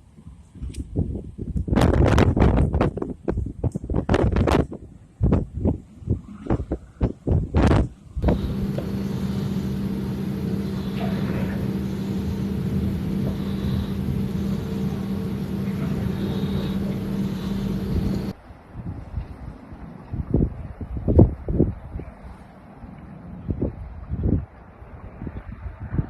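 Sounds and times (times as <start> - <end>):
wind buffeting microphone: 0.0 - 26.0
vehicle engine running: 8.2 - 18.3.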